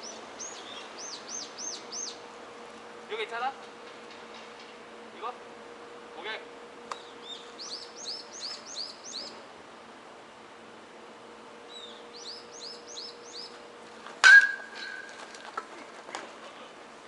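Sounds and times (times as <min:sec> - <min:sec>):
small bird chirping: 0:00.0 - 0:02.2, 0:07.0 - 0:09.4, 0:11.7 - 0:13.6
metal bat striking ball: 0:14.2 - 0:15.1.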